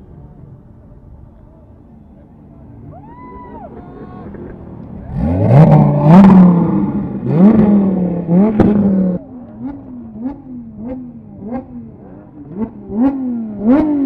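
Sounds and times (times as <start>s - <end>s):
engine accelerating through gears: 2.1s - 14.0s
exhaust cracks on gear shifts: 2.4s - 13.2s.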